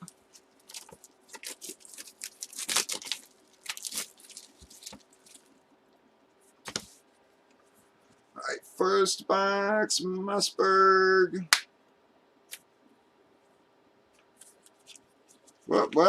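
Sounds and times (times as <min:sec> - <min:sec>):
packaging crinkling and tearing: 0:00.0 - 0:05.6, 0:14.4 - 0:15.7.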